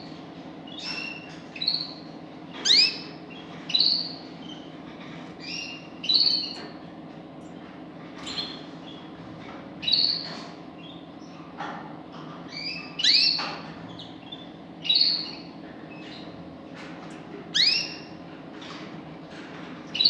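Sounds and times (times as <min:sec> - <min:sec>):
finch calling: 0:00.7 - 0:04.6, 0:12.5 - 0:16.3, 0:17.5 - 0:18.1.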